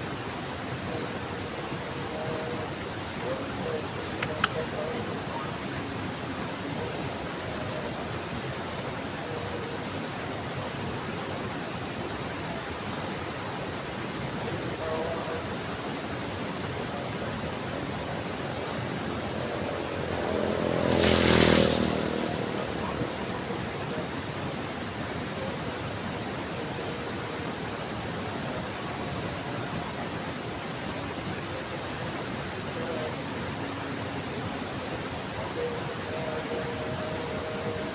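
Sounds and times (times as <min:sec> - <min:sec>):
heavy rain falling: 0:13.6 - 0:37.9.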